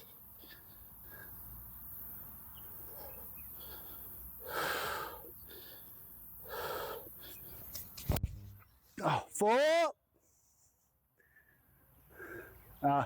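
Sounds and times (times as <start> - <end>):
person breathing out sharply: 3.0 - 7.7.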